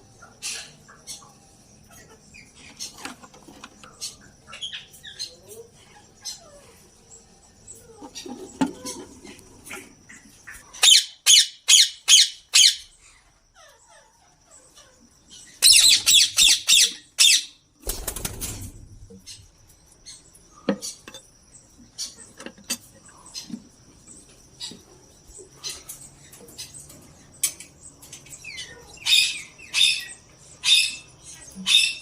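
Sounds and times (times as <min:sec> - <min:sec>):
parakeets squawking: 0:09.8 - 0:12.9, 0:15.4 - 0:17.6.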